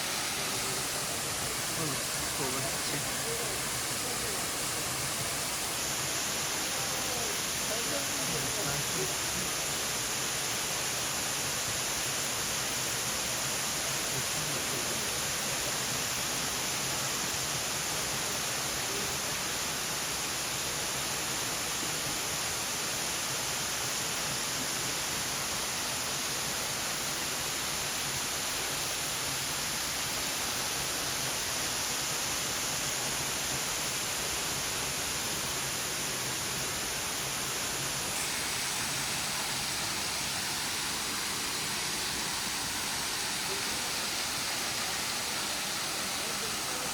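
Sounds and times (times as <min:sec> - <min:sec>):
waterfall pouring: 0:00.0 - 0:06.7, 0:38.1 - 0:46.9.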